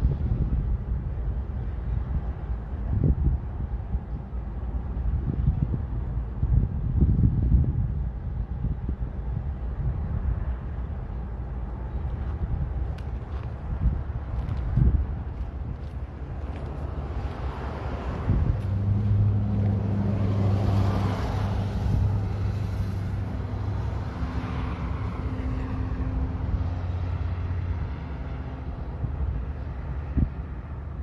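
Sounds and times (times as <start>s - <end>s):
vehicle engine passing by: 16.4s - 30.3s.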